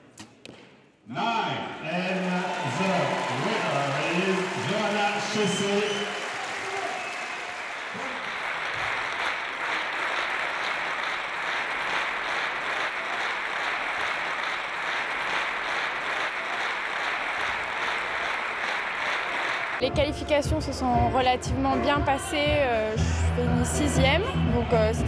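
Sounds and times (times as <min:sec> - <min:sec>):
crowd applauding: 0:01.8 - 0:19.8.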